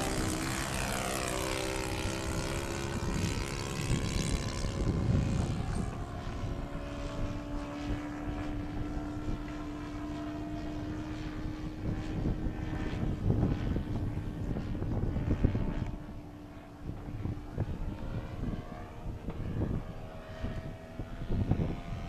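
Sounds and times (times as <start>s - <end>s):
model plane engine running: 0.0s - 22.0s
wind buffeting microphone: 0.0s - 22.0s.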